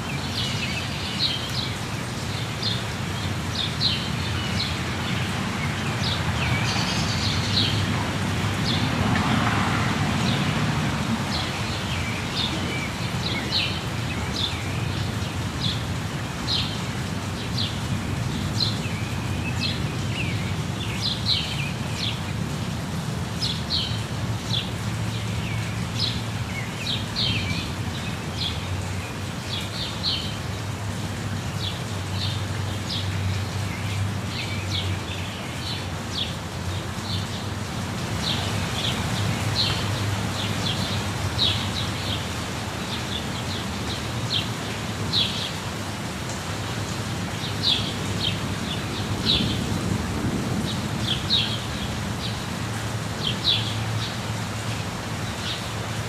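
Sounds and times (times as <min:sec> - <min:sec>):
birds chirping: 0:00.0 - 0:17.9, 0:31.6 - 0:46.3
waterfall rushing: 0:00.0 - 0:56.0.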